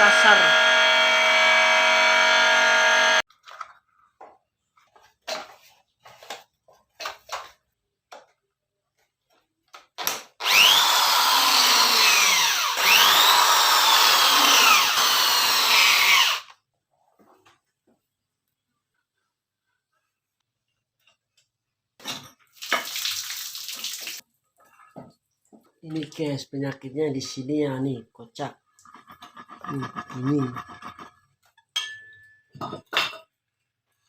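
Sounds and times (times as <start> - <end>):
water pump motor running: 0.0 - 3.2.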